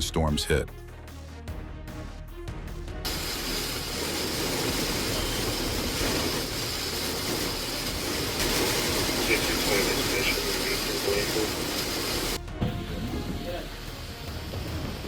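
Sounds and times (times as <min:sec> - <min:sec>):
background music: 0:00.0 - 0:15.0
heavy rain: 0:03.0 - 0:15.0
storm wind: 0:03.1 - 0:15.0.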